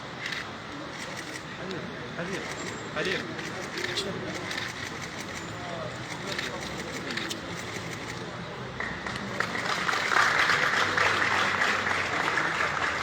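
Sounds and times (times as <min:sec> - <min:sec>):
crowd applauding: 0:08.8 - 0:13.0.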